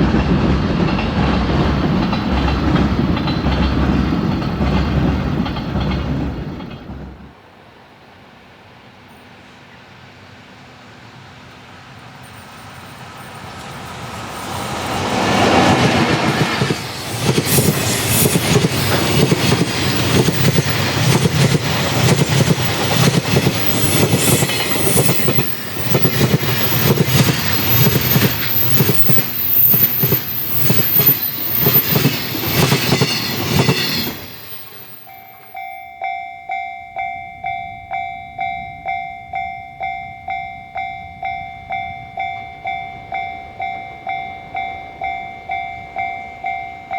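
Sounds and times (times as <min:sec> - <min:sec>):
train wheels clicking over rail joints: 0:00.0 - 0:07.4, 0:12.0 - 0:35.7
high-pitched wheel squeal: 0:23.6 - 0:35.7
electronic bell ringing: 0:35.0 - 0:46.9.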